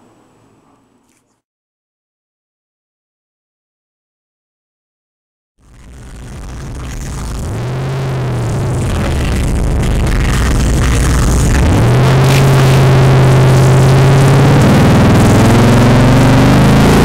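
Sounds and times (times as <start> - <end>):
deep synth bass: 5.6 - 17.0
electronic music: 5.6 - 17.0.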